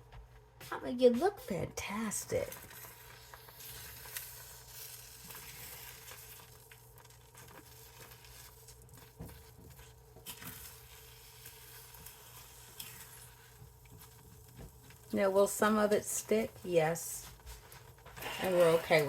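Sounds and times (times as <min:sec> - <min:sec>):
eggs sizzling in a frying pan: 0:01.5 - 0:19.0
spatula scraping and tapping pan: 0:11.4 - 0:19.0.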